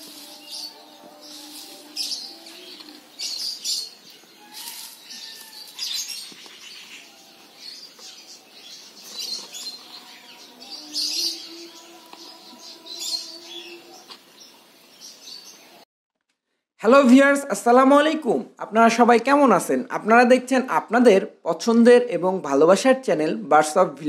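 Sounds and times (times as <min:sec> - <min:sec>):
budgerigars chirping and chattering: 0:00.3 - 0:15.6.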